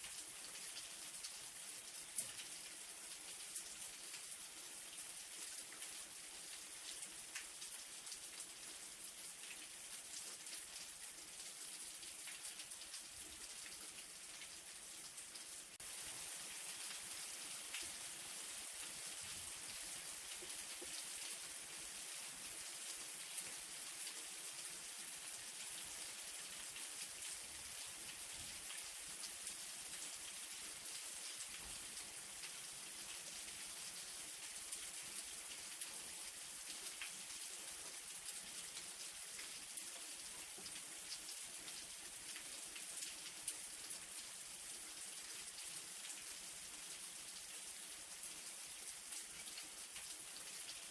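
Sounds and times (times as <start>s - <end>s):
light rain falling: 0.0s - 50.9s.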